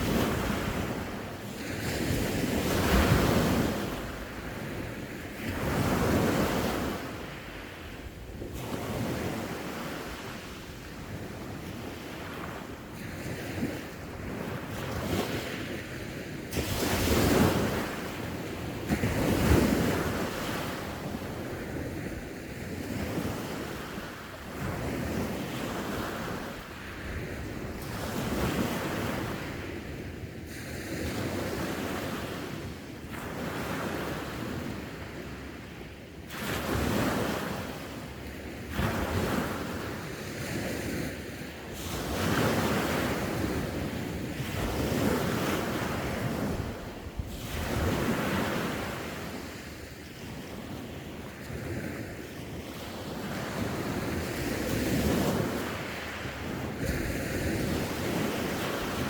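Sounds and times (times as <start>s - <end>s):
sea waves breaking: 0.0s - 15.8s, 36.3s - 59.0s.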